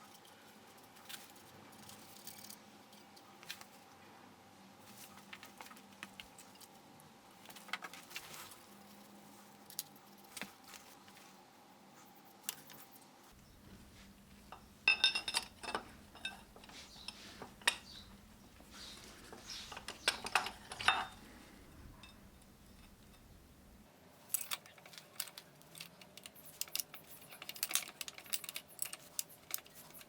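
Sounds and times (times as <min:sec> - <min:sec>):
light metal taps and clicks: 0:13.6 - 0:23.5
ringing metal clinks: 0:14.5 - 0:18.3, 0:19.7 - 0:21.2.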